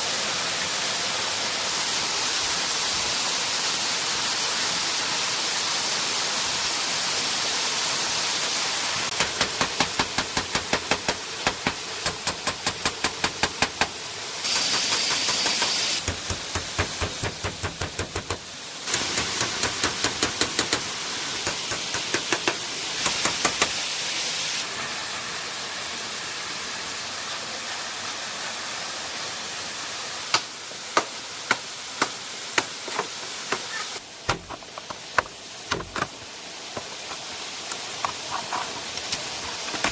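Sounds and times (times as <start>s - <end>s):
falling water rushing: 0.0s - 39.9s
sharp knocks: 34.3s - 36.2s.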